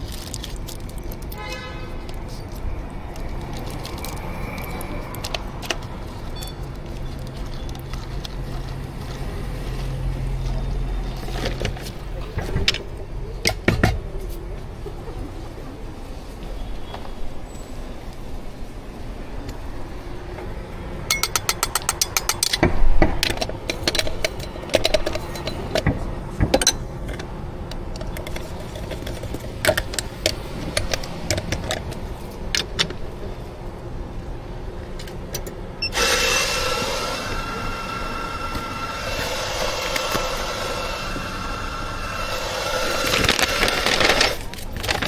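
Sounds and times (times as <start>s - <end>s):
steam hiss with whistling tone: 35.8s - 44.4s.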